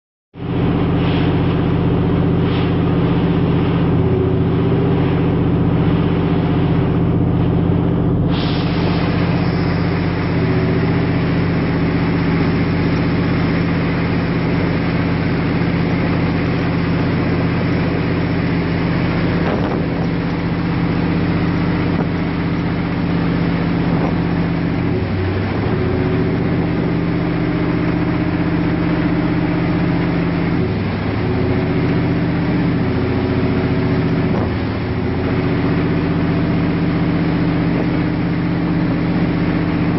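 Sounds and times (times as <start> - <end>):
boat engine droning: 0.4 - 39.9
hiss: 8.3 - 22.5.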